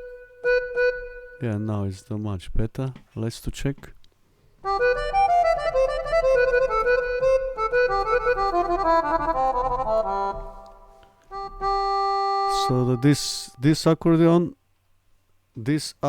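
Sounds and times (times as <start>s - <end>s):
accordion melody with reverb: 0.0s - 1.6s, 4.6s - 13.6s
sustained accordion chord: 0.0s - 1.7s, 4.6s - 13.6s.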